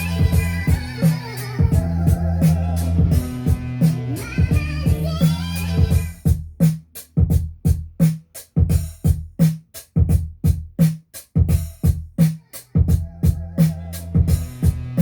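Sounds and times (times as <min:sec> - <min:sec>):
sustained bass: 0:00.0 - 0:06.6, 0:12.9 - 0:15.0
drum machine beat: 0:00.0 - 0:15.0
low kick drum thudding: 0:00.2 - 0:01.0, 0:01.6 - 0:05.2, 0:05.8 - 0:08.0, 0:10.0 - 0:10.8, 0:12.8 - 0:15.0.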